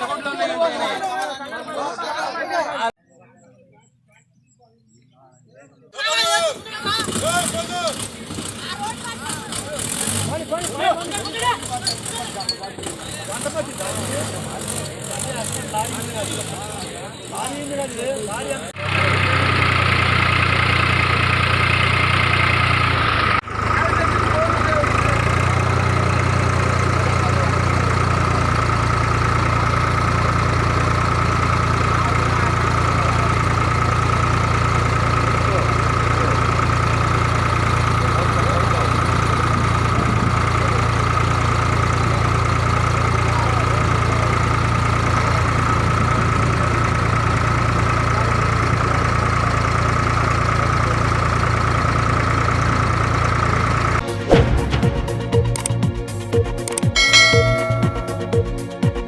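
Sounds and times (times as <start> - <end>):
engine droning: 6.8 - 56.4
steady high tone: 57.0 - 58.8.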